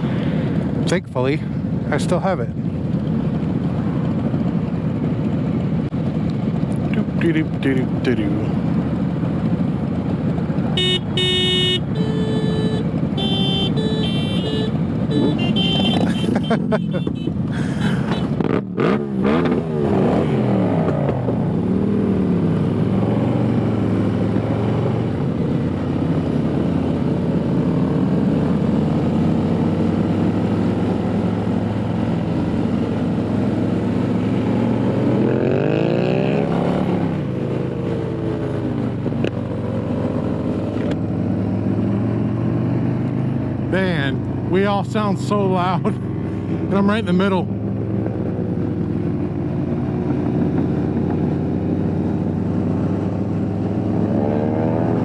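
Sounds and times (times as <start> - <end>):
motorcycle engines revving: 1.6 - 55.0.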